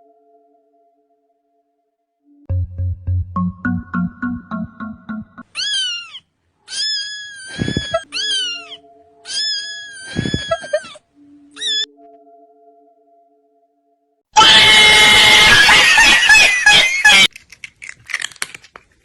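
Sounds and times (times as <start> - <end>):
held electronic notes: 2.5 - 5.4
rhythmic music beat: 2.5 - 5.4
cat meowing: 5.5 - 11.0, 11.6 - 11.9.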